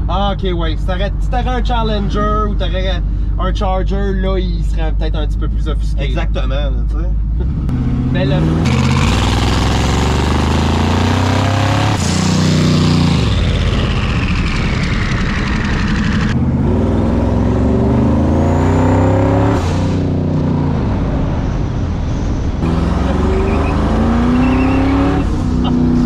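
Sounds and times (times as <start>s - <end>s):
car engine accelerating: 0.0s - 26.0s
faint high whistle: 23.3s - 25.0s.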